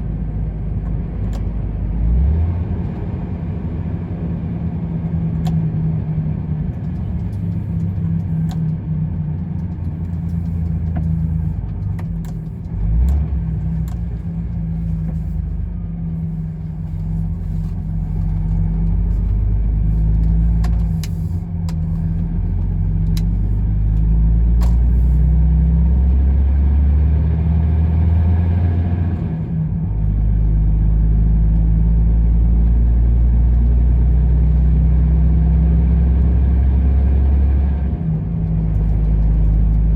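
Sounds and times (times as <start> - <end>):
truck engine droning: 0.0 - 39.9
light clicks and rattles: 6.6 - 15.6.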